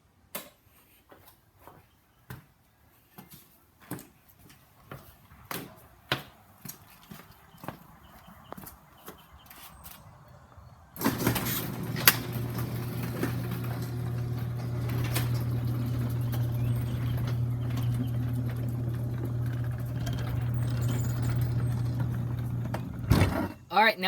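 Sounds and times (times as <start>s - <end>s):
garage door motor hum: 11.0s - 23.6s
sharp clicks and rattles: 11.0s - 23.6s.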